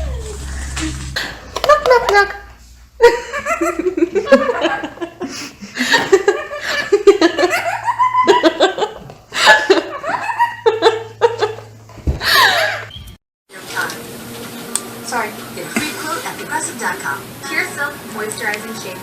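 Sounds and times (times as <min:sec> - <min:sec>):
falling squeal: 0:00.0 - 0:01.5
person laughing: 0:01.5 - 0:02.2, 0:03.0 - 0:11.6, 0:12.2 - 0:12.9.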